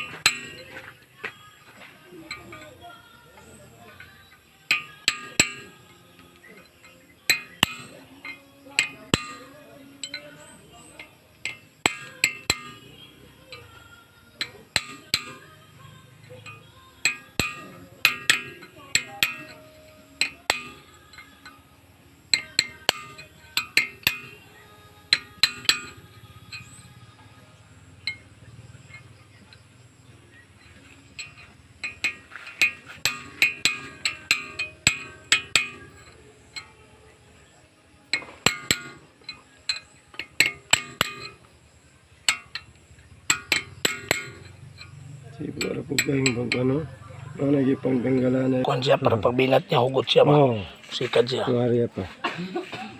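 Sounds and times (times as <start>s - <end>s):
hammer striking metal: 0.0s - 1.0s, 1.8s - 50.2s.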